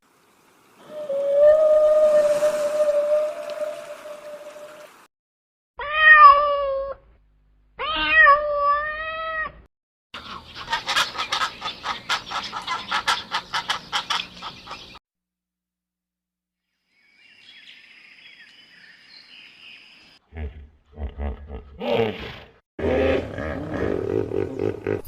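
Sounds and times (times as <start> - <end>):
cat meowing: 5.8 - 7.0, 7.8 - 9.7.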